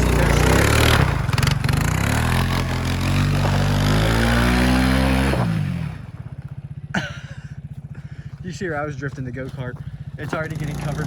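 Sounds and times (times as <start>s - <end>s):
vehicle engine revving: 0.0s - 6.8s, 9.8s - 11.0s.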